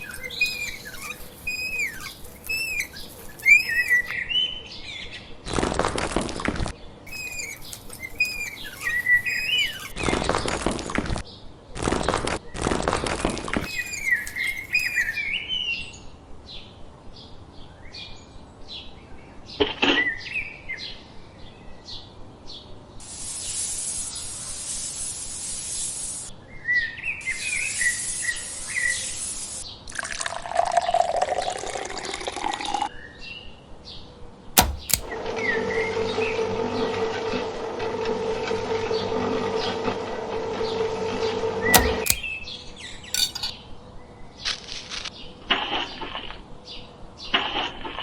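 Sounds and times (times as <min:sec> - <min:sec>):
birds chirping: 0:00.0 - 0:04.1, 0:07.1 - 0:09.9
sharp clicks: 0:34.6 - 0:35.2, 0:41.8 - 0:42.3.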